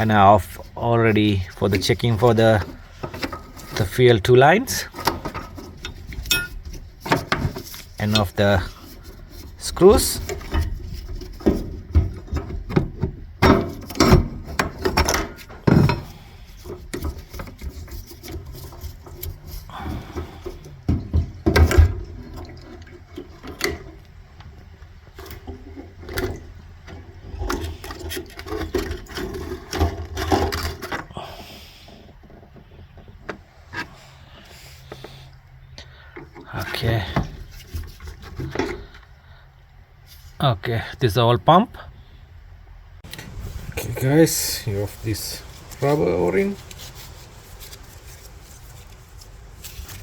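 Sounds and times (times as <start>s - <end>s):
hand tools clicking and knocking: 4.8s - 9.2s.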